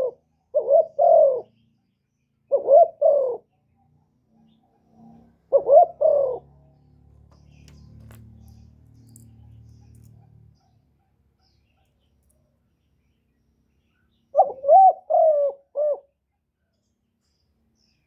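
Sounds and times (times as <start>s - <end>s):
dove cooing: 0.0s - 1.6s, 2.5s - 3.5s, 4.9s - 6.6s, 14.4s - 16.2s.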